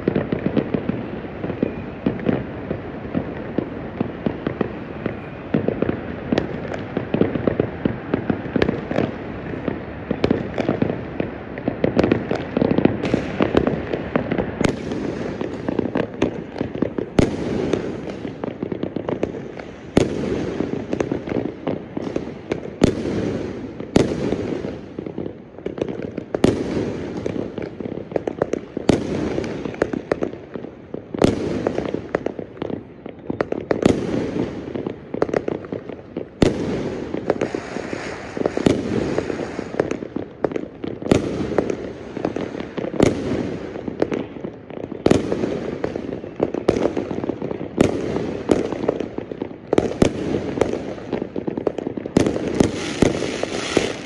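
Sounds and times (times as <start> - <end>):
firework bangs: 0.0 - 54.0
fireworks crackling: 0.0 - 54.0.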